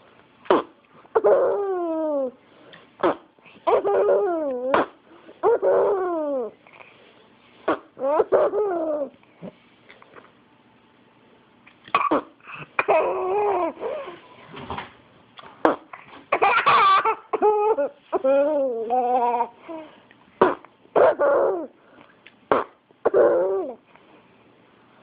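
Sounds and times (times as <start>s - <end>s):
baby laughing: 1.1s - 2.4s, 3.0s - 6.6s, 7.7s - 9.2s, 12.5s - 14.2s, 15.6s - 21.7s, 22.6s - 23.8s.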